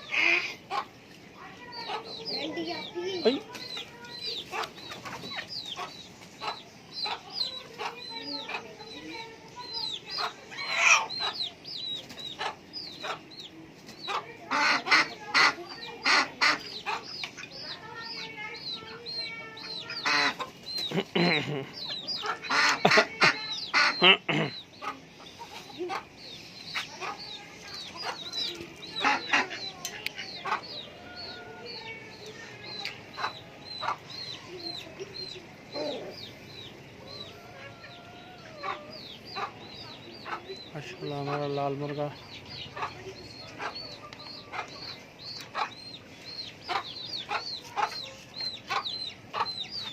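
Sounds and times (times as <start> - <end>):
chickens clucking and calling: 0.0 - 49.9.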